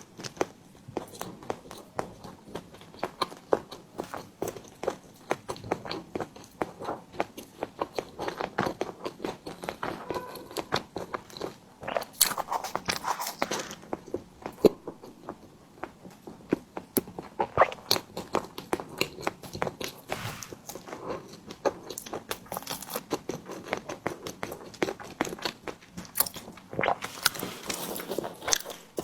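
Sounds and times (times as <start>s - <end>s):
person chewing: 25.4s - 29.0s.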